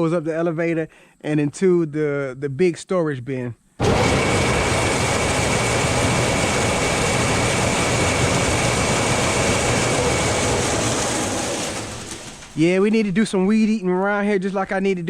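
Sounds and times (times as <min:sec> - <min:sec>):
machinery roar: 0:03.8 - 0:12.6.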